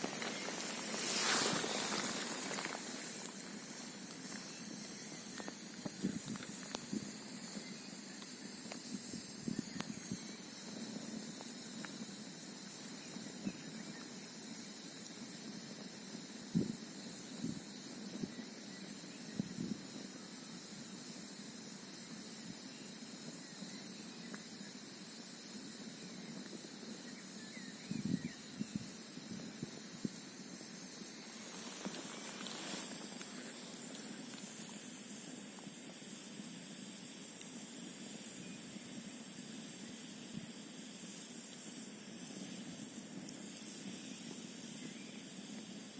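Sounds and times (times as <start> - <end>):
campfire crackling and popping: 0.0 - 13.4, 30.5 - 45.9
fire hissing: 0.0 - 45.9.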